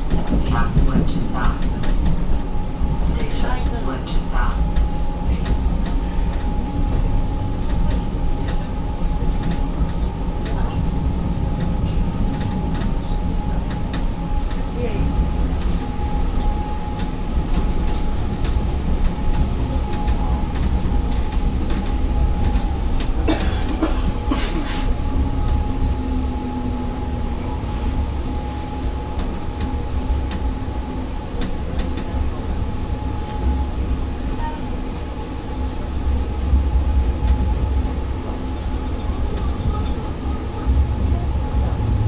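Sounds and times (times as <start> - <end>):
train knocks: 0.0 - 27.3
train interior rumble: 0.0 - 42.0.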